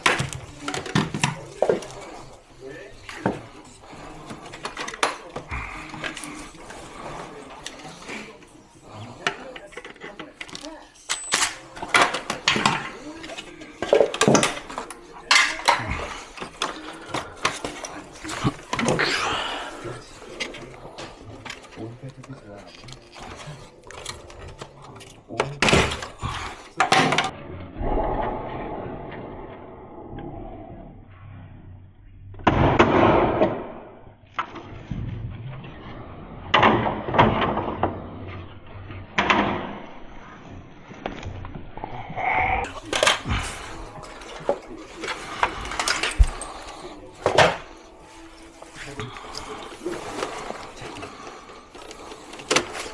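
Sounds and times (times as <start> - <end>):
hard plastic knocks and clatter: 0.0 - 27.3, 42.6 - 52.9
plastic and metal parts clinking: 0.0 - 27.3, 42.6 - 52.9.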